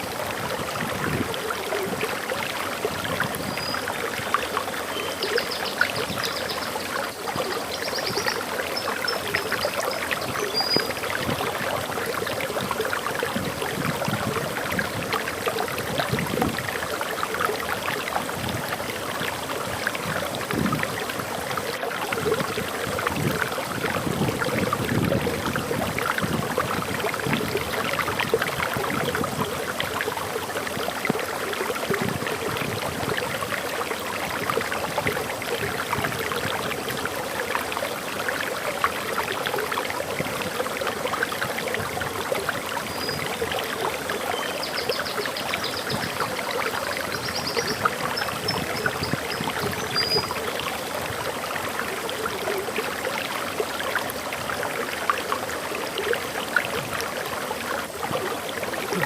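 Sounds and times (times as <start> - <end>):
waterfall splashing: 57.0 - 59.0.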